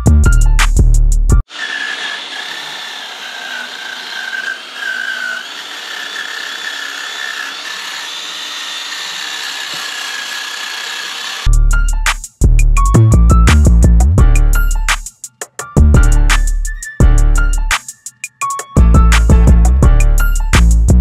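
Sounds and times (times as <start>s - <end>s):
power tool whining: 1.4s - 11.5s.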